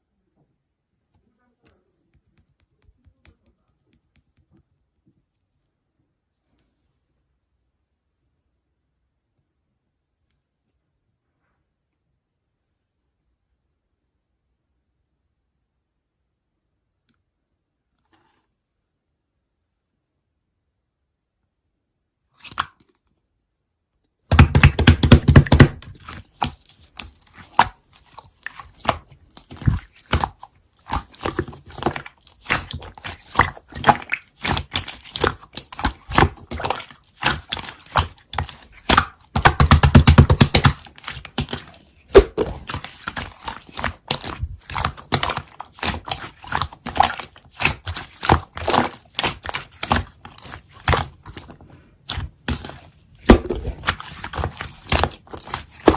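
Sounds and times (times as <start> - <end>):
slime squished by hand: 24.3 - 55.9.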